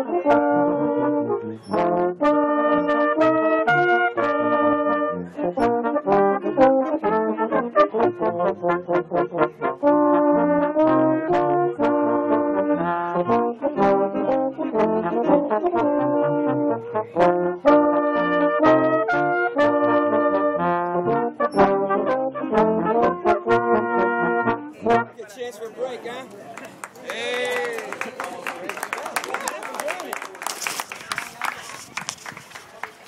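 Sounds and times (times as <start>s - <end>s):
brass band playing: 0.0s - 26.3s.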